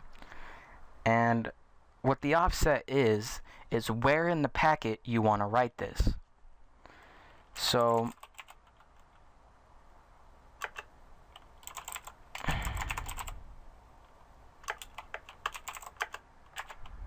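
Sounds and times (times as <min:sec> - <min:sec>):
keyboard typing clicks: 0:07.8 - 0:09.2, 0:10.6 - 0:13.4, 0:14.6 - 0:17.0.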